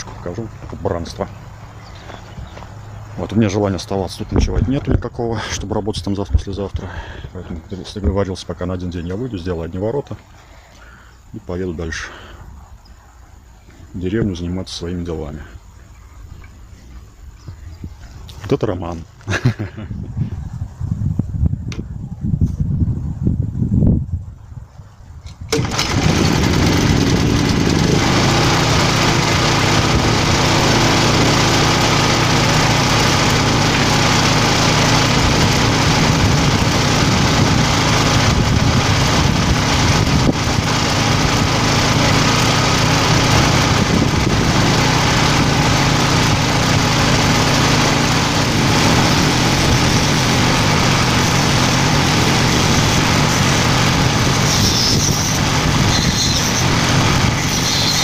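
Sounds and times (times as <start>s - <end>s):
generator engine running: 25.5s - 58.0s.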